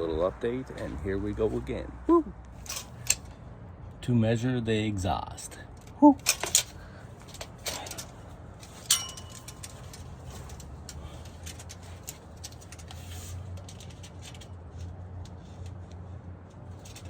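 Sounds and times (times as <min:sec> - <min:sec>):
steady low hum: 0:00.0 - 0:17.0
metallic clink with ringing: 0:08.8 - 0:10.0.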